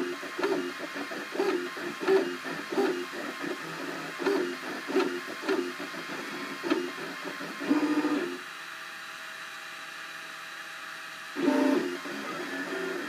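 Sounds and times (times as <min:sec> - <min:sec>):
printer stepper motors whining: 0:00.0 - 0:08.4, 0:11.3 - 0:13.0.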